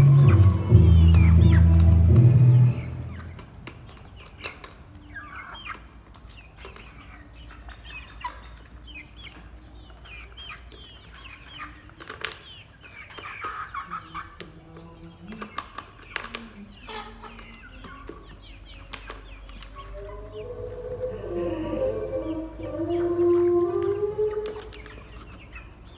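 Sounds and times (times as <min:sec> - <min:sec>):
chickens chirping and clucking: 0:00.0 - 0:25.9.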